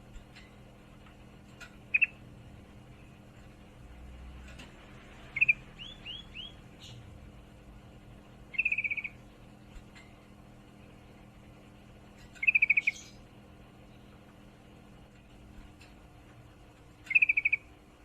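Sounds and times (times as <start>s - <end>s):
faint low hum: 0.0s - 18.0s
bird chattering calls: 1.9s - 2.2s, 8.5s - 9.2s, 12.4s - 13.2s, 17.1s - 17.7s.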